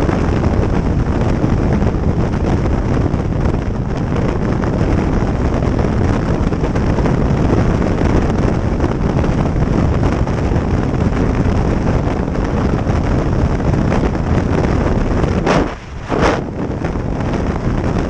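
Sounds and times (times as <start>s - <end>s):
motorcycle and road noise: 0.0s - 18.0s
wind rushing over microphone: 0.0s - 18.0s.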